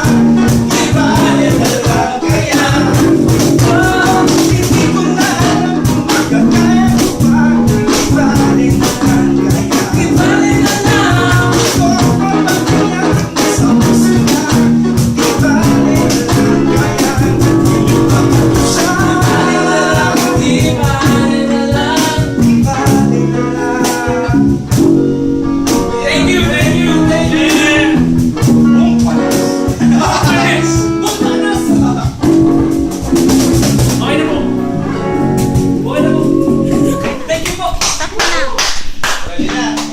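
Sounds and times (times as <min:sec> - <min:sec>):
percussion hits: 0:00.0 - 0:23.1, 0:23.8 - 0:39.9
person singing: 0:00.0 - 0:31.0, 0:34.0 - 0:37.4
guitar: 0:00.0 - 0:39.9.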